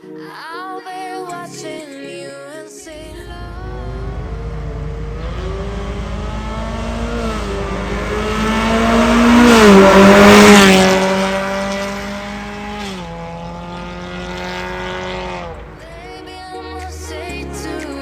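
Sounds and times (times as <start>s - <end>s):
car engine pulling: 2.9s - 16.6s.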